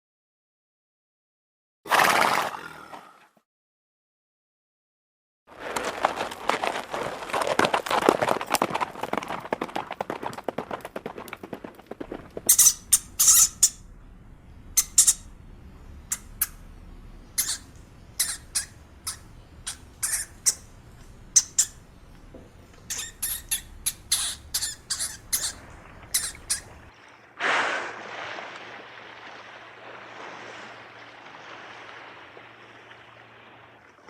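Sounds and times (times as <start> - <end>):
rustling and crackling: 5.5 - 16.8
small animal squeaking: 12.4 - 13.9, 14.7 - 15.3, 16.0 - 22.1, 22.7 - 26.9.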